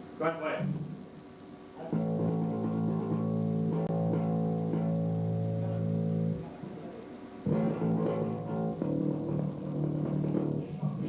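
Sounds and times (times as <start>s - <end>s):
electric bass guitar ringing: 1.8s - 6.6s, 7.5s - 11.0s.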